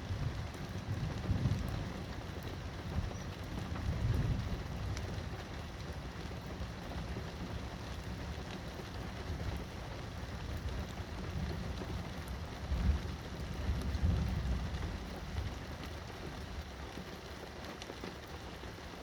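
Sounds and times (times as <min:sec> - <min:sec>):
low thunder rumble: 0:00.0 - 0:08.4, 0:10.4 - 0:15.6
steady rain falling: 0:00.0 - 0:19.0
raindrop ticks: 0:00.1 - 0:18.8.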